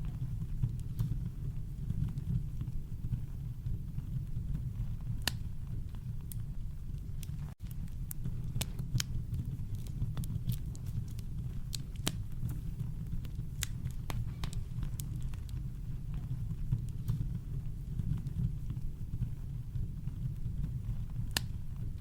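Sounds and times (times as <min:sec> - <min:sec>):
campfire crackling: 0:00.0 - 0:22.0
deep rumble of fire: 0:00.0 - 0:22.0.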